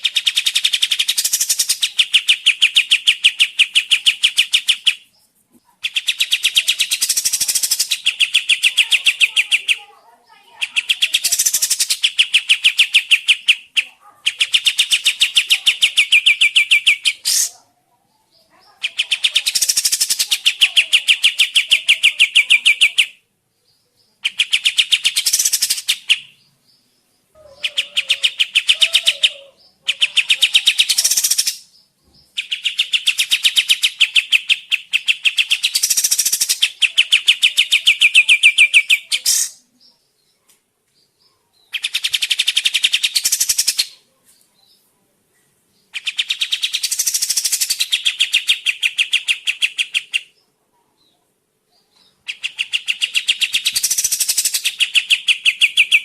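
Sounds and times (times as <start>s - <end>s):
bird singing rapid trill: 0.0s - 17.6s, 18.3s - 40.3s, 41.6s - 44.0s, 45.8s - 50.4s, 51.9s - 56.0s.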